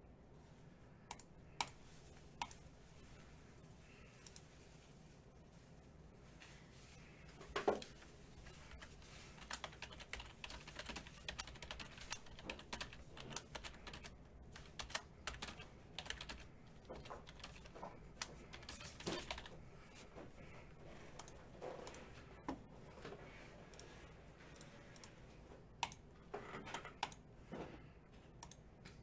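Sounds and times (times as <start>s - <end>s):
computer keyboard typing: 1.1s - 1.8s, 2.4s - 2.6s, 7.7s - 22.2s, 25.8s - 26.1s, 26.7s - 27.2s.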